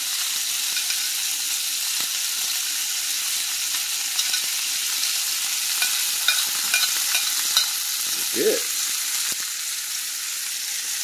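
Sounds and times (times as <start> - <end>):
chicken sizzling in oil: 0.0 - 11.0
tongs clicking on pan: 0.6 - 1.2, 4.1 - 8.0.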